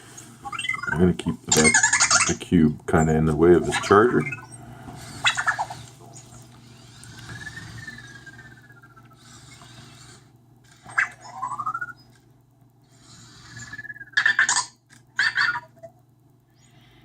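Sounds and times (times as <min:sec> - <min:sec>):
robot electronic chirps: 0:00.4 - 0:02.4, 0:03.6 - 0:10.0, 0:10.9 - 0:12.2
small motors whirring: 0:03.4 - 0:15.9.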